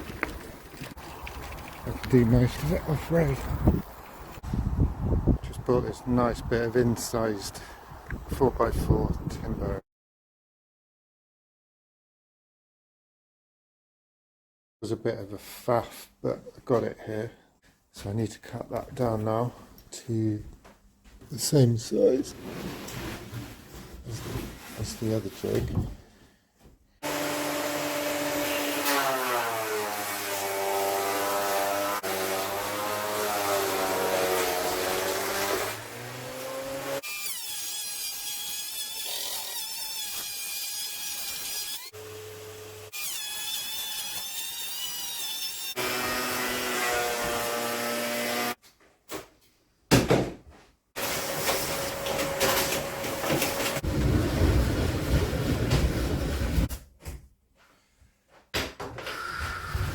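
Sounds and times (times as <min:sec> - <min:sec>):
power saw cutting timber: 0:27.0 - 0:48.6, 0:51.0 - 0:55.3.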